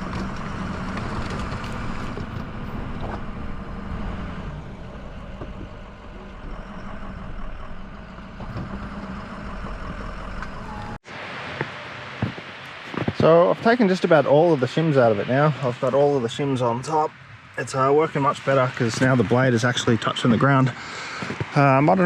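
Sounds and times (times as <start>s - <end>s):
truck engine running under load: 0.0s - 11.0s.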